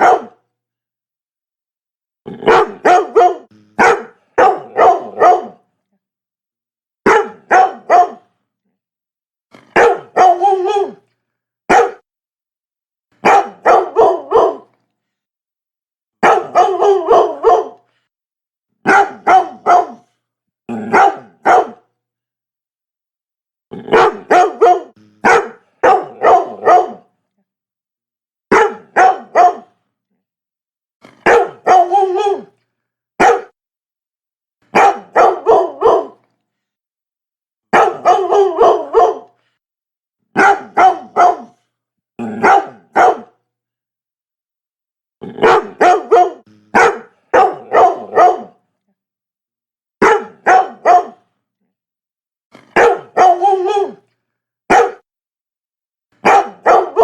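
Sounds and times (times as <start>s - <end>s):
dog barking: 0.0s - 0.4s, 2.4s - 5.6s, 7.1s - 8.3s, 9.6s - 11.0s, 11.7s - 12.0s, 13.2s - 14.8s, 16.2s - 17.9s, 18.8s - 21.9s, 23.9s - 27.1s, 28.5s - 29.8s, 31.1s - 32.5s, 33.2s - 33.6s, 34.7s - 36.2s, 37.7s - 39.4s, 40.3s - 41.6s, 42.2s - 43.4s, 45.3s - 48.6s, 50.0s - 51.2s, 52.6s - 54.0s, 54.7s - 55.1s, 56.2s - 57.0s.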